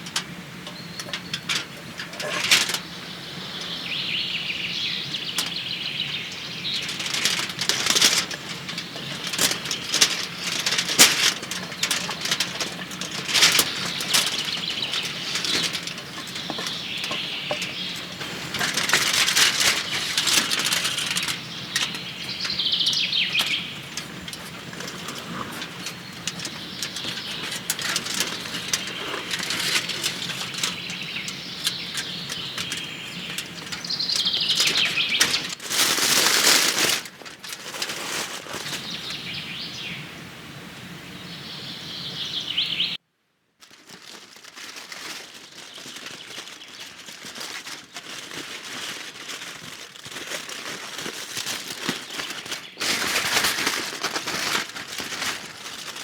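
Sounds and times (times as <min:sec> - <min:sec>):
birds chirping: 0:00.0 - 0:37.6, 0:38.5 - 0:43.0
wood fire crackling: 0:00.0 - 0:39.5
rustling: 0:00.0 - 0:39.9, 0:43.6 - 0:56.0.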